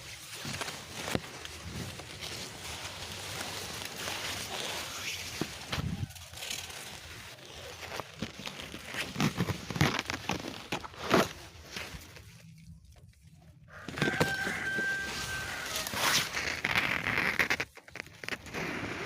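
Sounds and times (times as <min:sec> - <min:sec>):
rooster crowing: 0:13.7 - 0:16.2.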